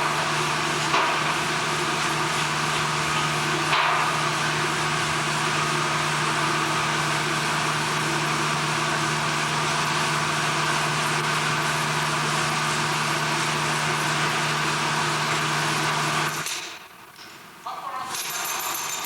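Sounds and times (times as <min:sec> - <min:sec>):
heavy machinery droning: 0:00.0 - 0:16.5.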